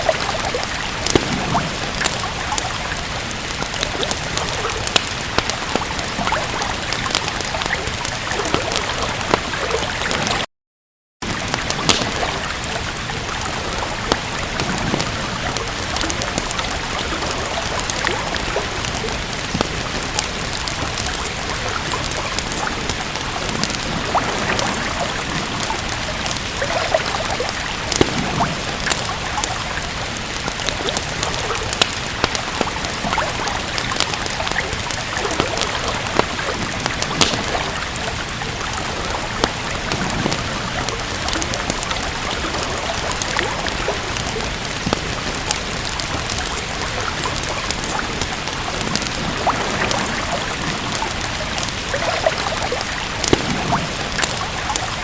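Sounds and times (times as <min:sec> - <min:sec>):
steady rain: 0:00.0 - 0:10.5, 0:11.2 - 0:55.0
wood fire crackling and popping: 0:00.0 - 0:10.5, 0:11.2 - 0:55.0.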